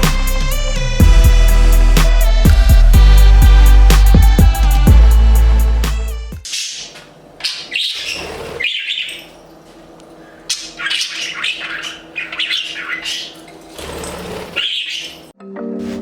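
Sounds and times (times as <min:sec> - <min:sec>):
budgies chirping and chattering: 0:06.5 - 0:09.4, 0:10.2 - 0:15.3.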